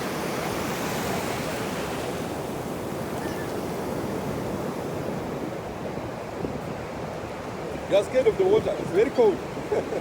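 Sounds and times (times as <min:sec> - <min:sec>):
wind buffeting microphone: 0:04.0 - 0:10.0.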